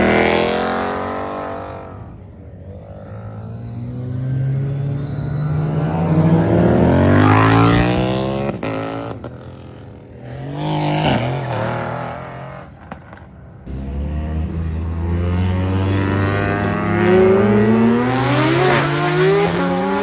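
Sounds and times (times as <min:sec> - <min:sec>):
car engine accelerating: 0:02.9 - 0:09.3, 0:13.7 - 0:20.0.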